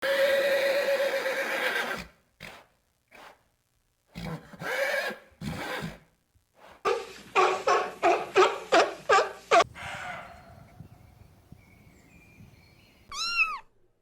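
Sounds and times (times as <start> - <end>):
animal calling: 13.1 - 13.8.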